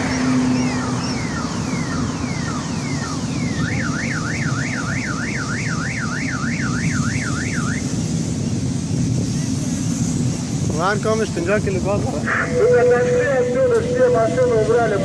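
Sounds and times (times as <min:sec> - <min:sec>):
car alarm chirping and warbling: 0:00.0 - 0:08.0, 0:12.2 - 0:15.0.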